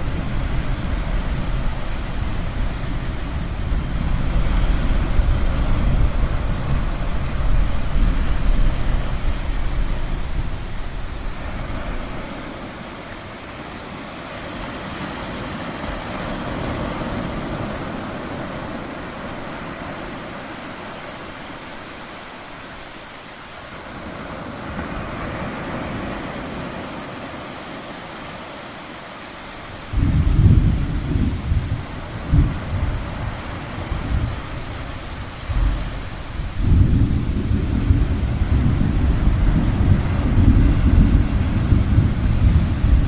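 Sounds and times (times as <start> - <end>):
thunder rumbling: 0.0 - 13.0, 29.8 - 43.0
ocean waves washing in: 0.0 - 43.0
loud peal of thunder: 29.9 - 43.0.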